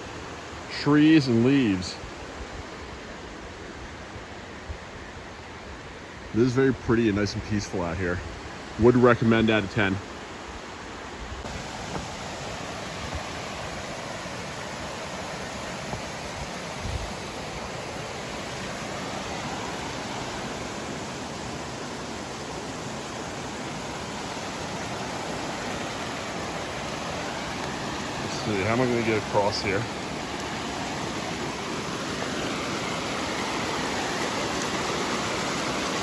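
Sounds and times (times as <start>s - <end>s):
stream rushing over rapids: 0.0s - 36.0s.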